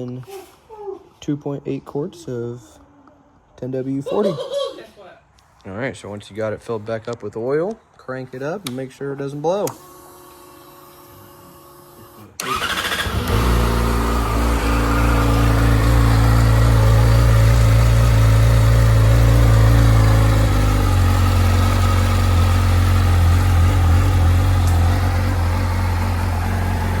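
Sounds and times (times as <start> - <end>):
motorcycle engine idling: 12.4 - 27.0.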